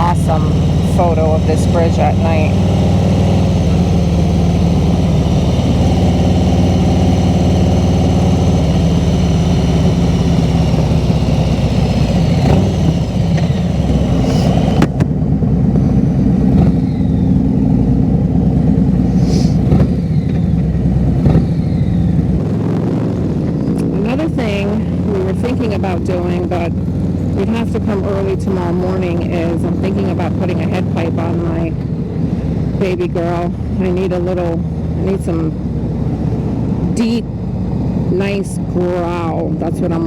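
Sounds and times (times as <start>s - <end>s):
motorcycle engine cruising: 0.0s - 40.0s.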